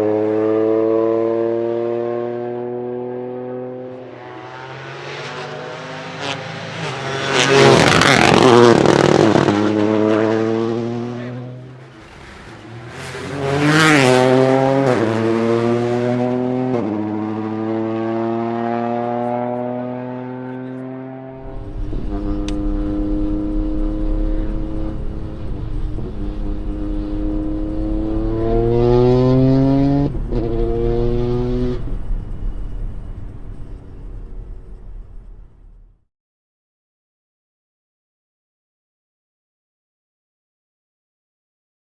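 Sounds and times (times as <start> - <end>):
rally car engine revving: 0.0 - 35.9
exhaust crackles: 21.4 - 36.0.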